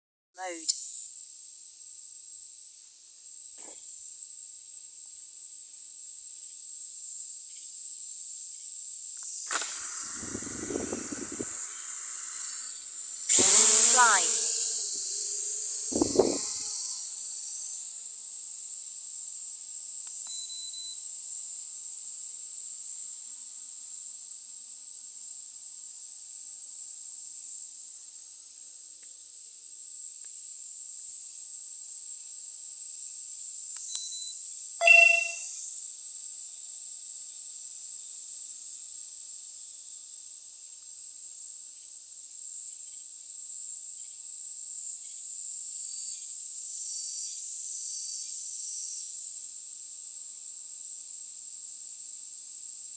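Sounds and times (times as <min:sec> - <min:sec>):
insects chirring: 0:02.0 - 0:20.3, 0:34.8 - 0:35.5
faint brief tone: 0:10.0 - 0:15.1, 0:34.1 - 0:35.5
short loud pitched sound: 0:13.3 - 0:15.4, 0:34.8 - 0:35.4.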